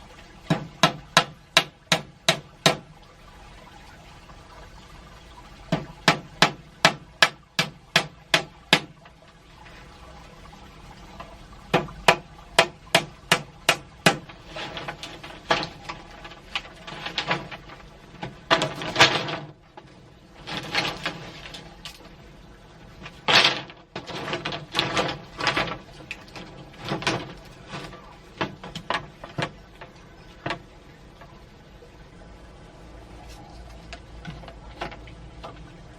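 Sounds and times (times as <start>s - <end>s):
scraping or rustling bursts: 13.8s - 22.2s, 22.8s - 30.5s.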